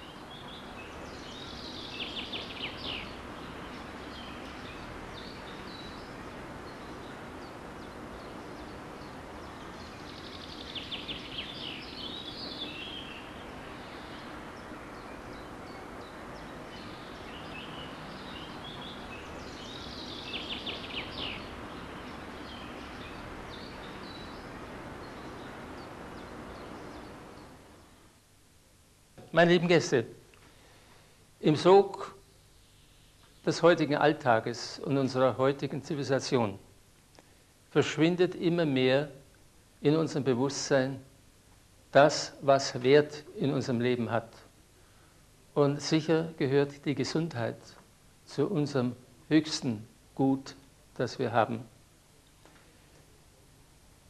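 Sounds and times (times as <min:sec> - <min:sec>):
songbird trilling: 0:00.0 - 0:27.6
steady outdoor hiss: 0:00.0 - 0:54.0.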